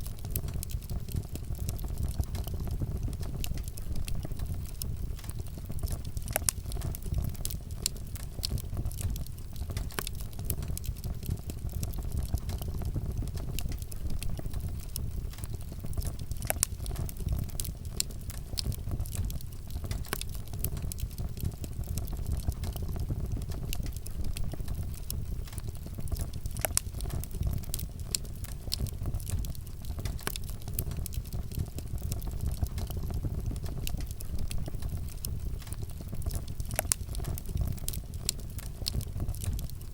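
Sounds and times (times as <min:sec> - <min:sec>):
burning wood crackling and popping: 0:00.0 - 0:39.9
wood fire rumbling: 0:00.0 - 0:39.9.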